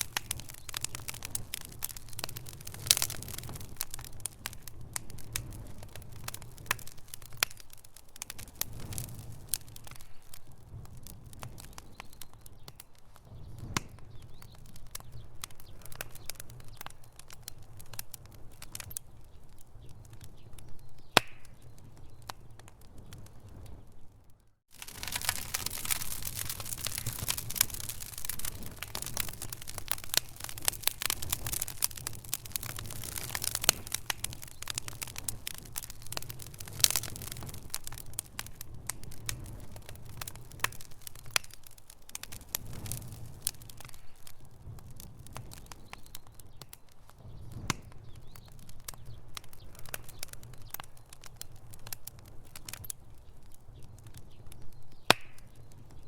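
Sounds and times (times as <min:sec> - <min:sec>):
fire rumbling: 0:00.0 - 0:56.0
wood fire crackling: 0:00.0 - 0:56.0.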